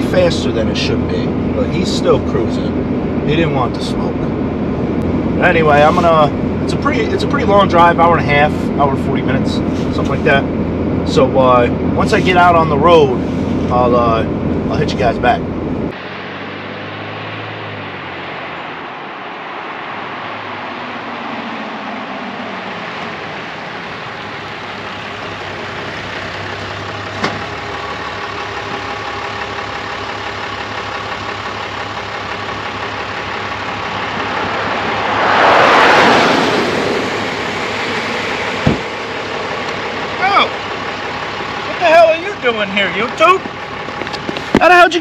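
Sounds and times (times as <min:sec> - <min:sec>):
truck engine and road noise: 0:00.0 - 0:45.0
rush of noise: 0:12.9 - 0:26.0, 0:33.5 - 0:40.6.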